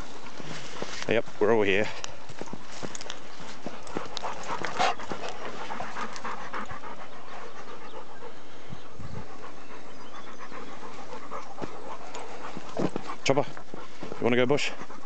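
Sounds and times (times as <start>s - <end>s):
dogs panting heavily: 0.0s - 15.0s.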